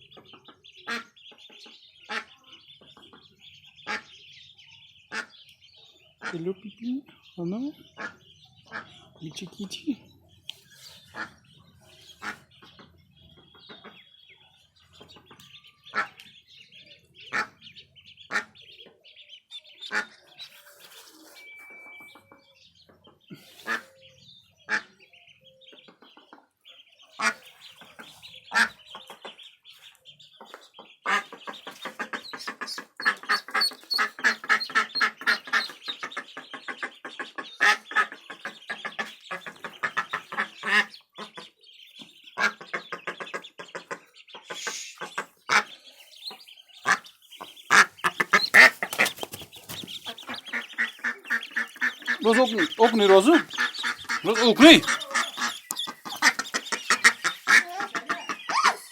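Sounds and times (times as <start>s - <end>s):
sharp duckling calls: 0.0s - 20.9s, 23.4s - 58.9s
ducklings peeping: 0.0s - 58.9s
loud fast duck calls: 47.7s - 58.8s.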